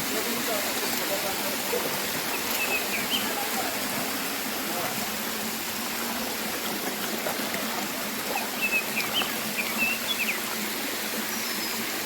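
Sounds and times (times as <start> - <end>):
waterfall rushing: 0.0 - 12.0
bird chirping: 2.3 - 3.3, 8.6 - 10.4.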